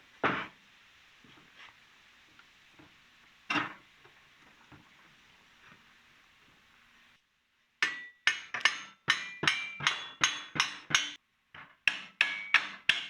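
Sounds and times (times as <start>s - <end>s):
hammer striking steel: 7.8s - 13.0s.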